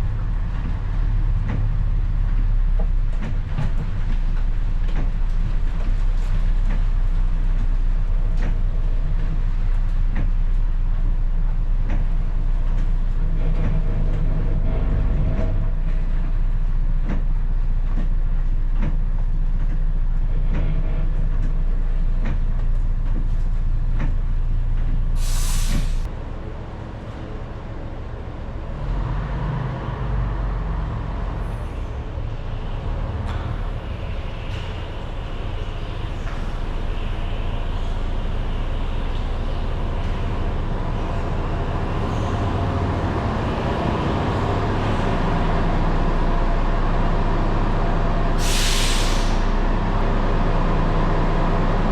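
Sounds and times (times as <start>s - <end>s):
diesel bus engine idling: 0.0s - 51.9s
air brakes hissing: 25.2s - 26.1s, 48.4s - 49.8s.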